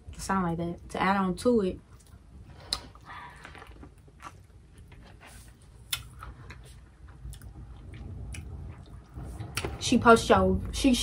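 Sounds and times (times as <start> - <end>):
person chewing with mouth clicks: 1.9 - 9.7.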